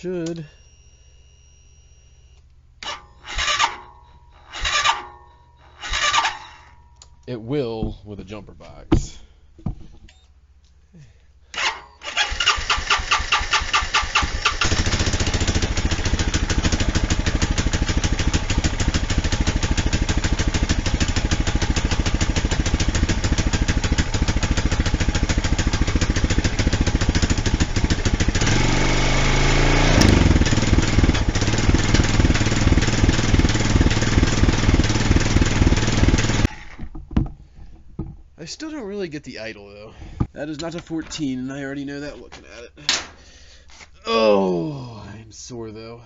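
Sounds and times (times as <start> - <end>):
atv engine cranking and idling: 2.8 - 9.2, 11.5 - 38.4
atv engine revving: 4.5 - 5.0, 5.8 - 6.6, 11.6 - 36.7.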